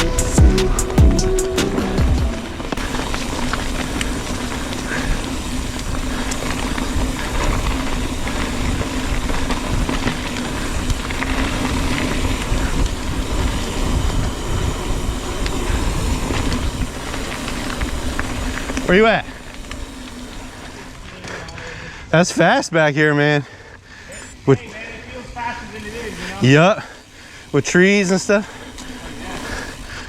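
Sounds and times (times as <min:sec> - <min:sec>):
wind rumbling on microphone: 0:00.0 - 0:21.0
bike rattling: 0:00.0 - 0:30.0
tyres rolling over dirt: 0:00.0 - 0:30.0.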